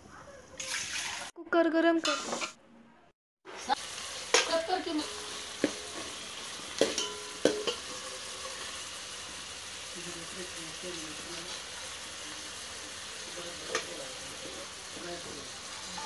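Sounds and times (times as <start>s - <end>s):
oil sizzling: 3.4s - 16.0s
ladle knocking on metal pot: 6.8s - 7.8s.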